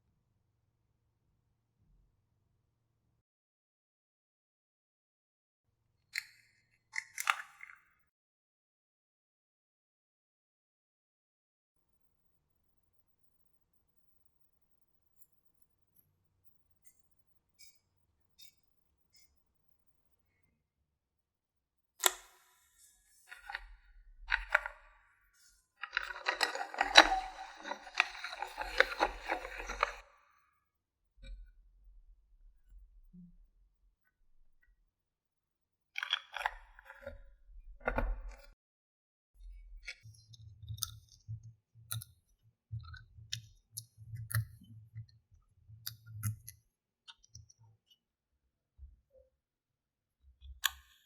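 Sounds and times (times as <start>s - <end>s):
plastic toy pieces clicking: 25.8s - 30.0s.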